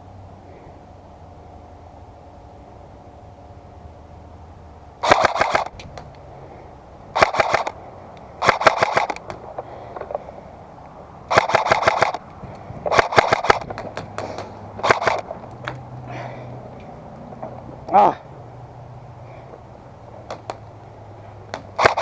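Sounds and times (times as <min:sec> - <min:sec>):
airsoft gun bursts: 0:05.0 - 0:05.8, 0:07.1 - 0:07.8, 0:08.4 - 0:09.3, 0:11.3 - 0:12.2, 0:12.9 - 0:15.3, 0:21.7 - 0:22.0.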